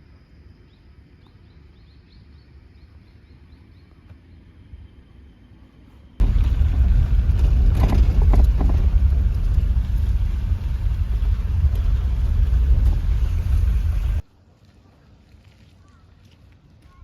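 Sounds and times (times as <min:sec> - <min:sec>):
wind buffeting microphone: 0:06.2 - 0:14.2.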